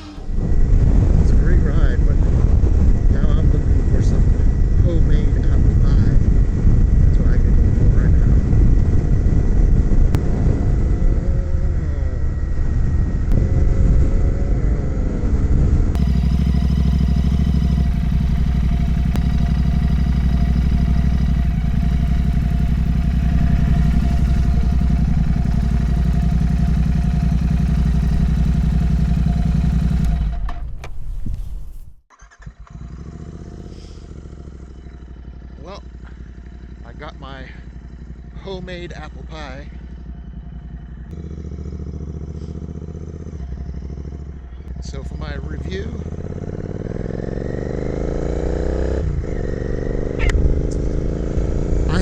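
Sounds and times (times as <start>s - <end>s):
wind noise: 0.0s - 16.6s, 30.2s - 32.0s
motorcycle engine: 0.0s - 31.0s, 32.1s - 52.0s
low hum: 0.0s - 32.0s, 32.6s - 52.0s.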